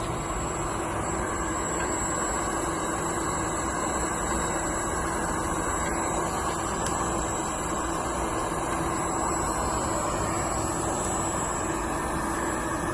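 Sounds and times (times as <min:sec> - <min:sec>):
constant hum: 0:00.0 - 0:12.9
thin high whine: 0:00.0 - 0:12.9
welding machine hissing: 0:00.0 - 0:12.9.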